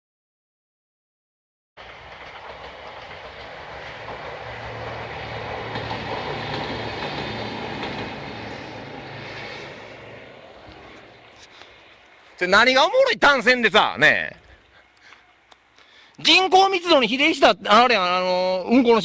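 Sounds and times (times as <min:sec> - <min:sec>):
train passing: 0:01.8 - 0:15.8.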